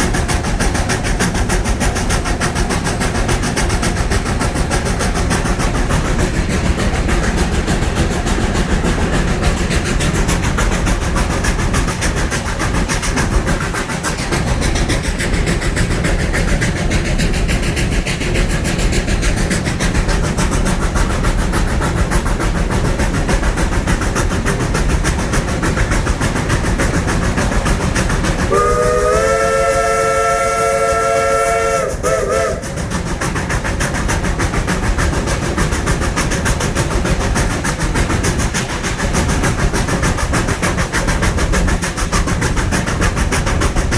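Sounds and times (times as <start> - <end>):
steam locomotive rumbling: 0.0 - 43.9.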